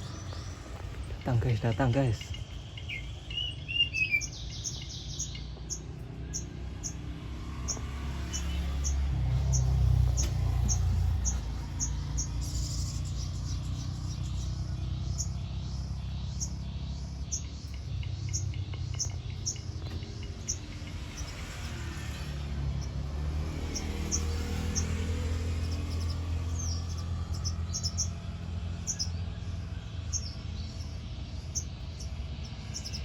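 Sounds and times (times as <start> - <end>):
bird chirping: 0.0 - 33.0.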